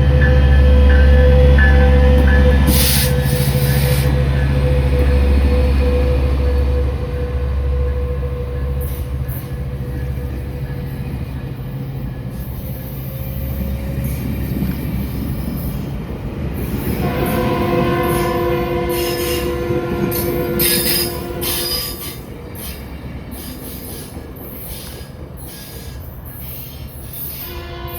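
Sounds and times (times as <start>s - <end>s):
diesel train engine drone: 0.0s - 27.9s.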